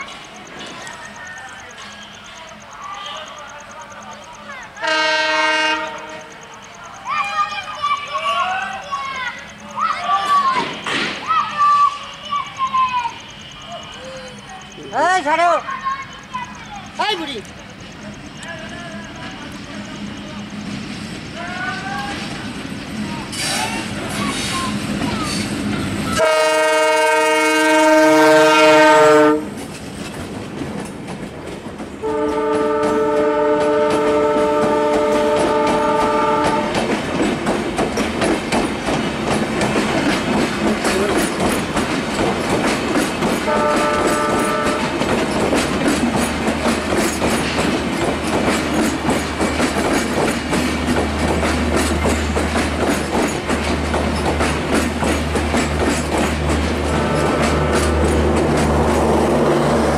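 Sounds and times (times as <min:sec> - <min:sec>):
train wheels clattering on rails: 0:00.0 - 0:59.9
locomotive horn blasts: 0:04.8 - 0:06.5, 0:26.2 - 0:29.5, 0:32.0 - 0:36.9, 0:43.5 - 0:45.0, 0:56.9 - 0:58.0.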